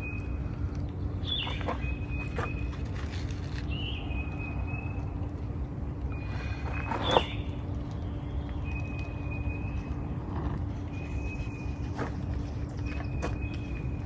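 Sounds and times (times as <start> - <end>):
birds calling: 0.0 - 3.0, 6.1 - 14.0
low steady rumble: 0.0 - 14.0.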